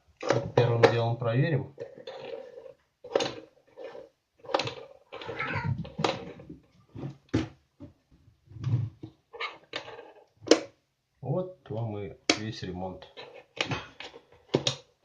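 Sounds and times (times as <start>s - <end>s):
objects knocking on a table: 4.5s - 8.0s.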